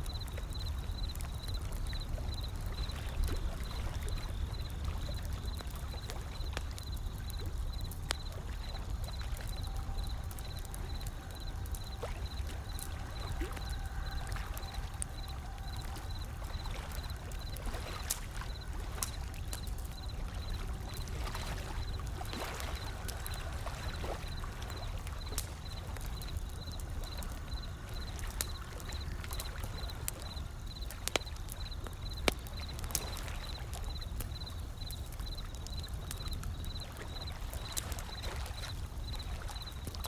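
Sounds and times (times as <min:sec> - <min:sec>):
wood fire crackling: 0:00.0 - 0:40.0
ocean waves: 0:08.2 - 0:33.9.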